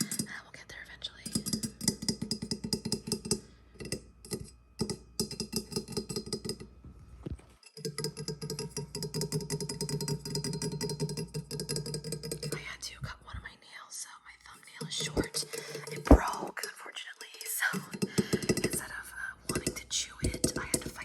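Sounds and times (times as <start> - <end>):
fingers tapping on hard objects: 1.4 - 6.7.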